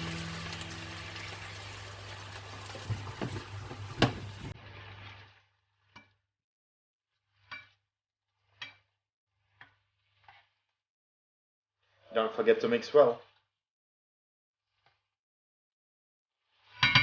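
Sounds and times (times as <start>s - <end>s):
food sizzling in a frying pan: 0.0s - 5.1s
utensil knocking against pan: 2.8s - 4.5s.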